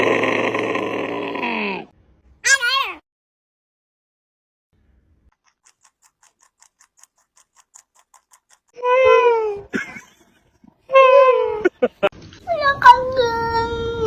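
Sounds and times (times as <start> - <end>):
sharp clicks: 5.3 - 8.8
faint rapid ticking: 5.4 - 8.8.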